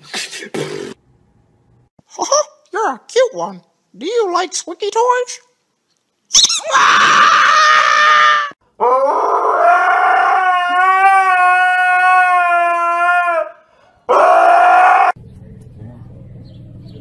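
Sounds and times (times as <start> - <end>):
husky howling: 6.7 - 15.2.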